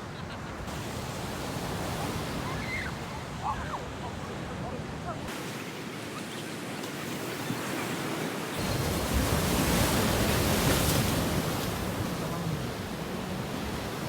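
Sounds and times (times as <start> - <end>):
sea surf washing onto beach: 0.7 - 14.0.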